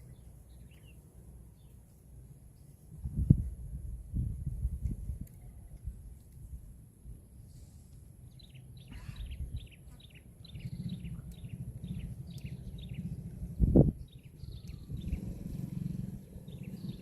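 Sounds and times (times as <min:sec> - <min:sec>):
bird chirping: 0:00.0 - 0:01.8, 0:08.3 - 0:17.0
low rumble: 0:10.4 - 0:17.0.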